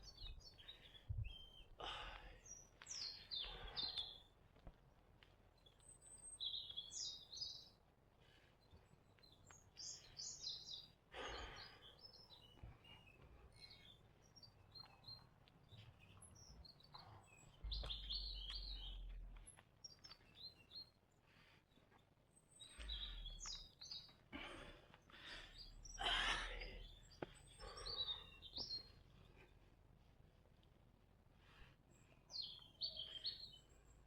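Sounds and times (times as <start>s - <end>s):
birds coarse calls: 0.0s - 4.3s, 6.0s - 14.9s, 22.5s - 29.6s, 31.4s - 34.0s
birds short high chirps: 2.4s - 4.3s, 5.6s - 7.8s, 8.6s - 21.0s, 22.4s - 24.1s, 31.9s - 34.0s.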